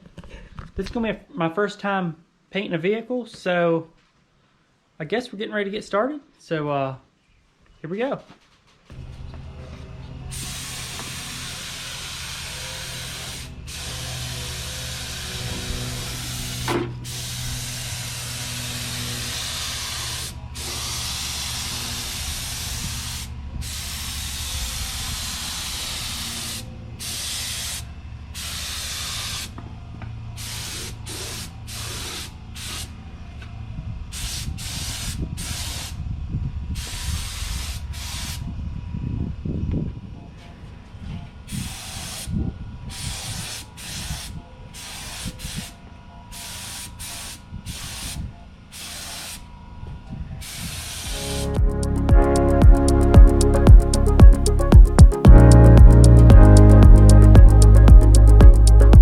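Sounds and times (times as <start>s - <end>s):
steady low hum: 8.9s - 30.6s, 51.1s - 59.0s
paint spray gun hissing: 10.3s - 29.6s, 30.4s - 32.9s, 34.1s - 36.0s, 36.8s - 38.4s, 41.6s - 42.3s, 42.9s - 45.7s, 46.4s - 49.4s, 50.4s - 52.6s.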